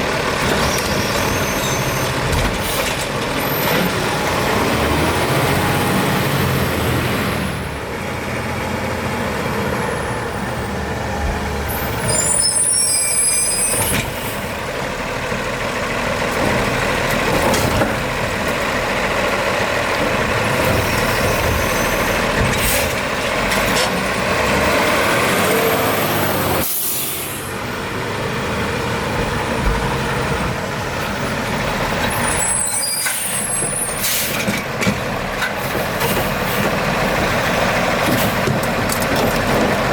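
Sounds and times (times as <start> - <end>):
garbage truck running: 0.0 - 39.9
air brake hiss: 26.6 - 27.5, 32.7 - 34.4.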